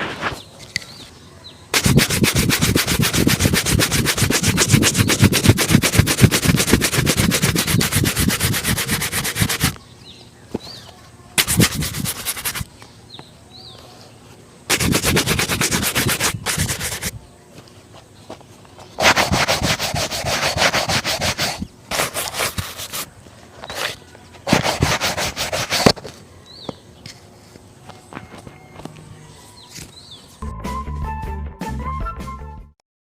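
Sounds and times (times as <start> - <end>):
shoe being brushed: 1.8 - 9.8, 11.4 - 12.7, 14.7 - 17.2, 19.0 - 26.0.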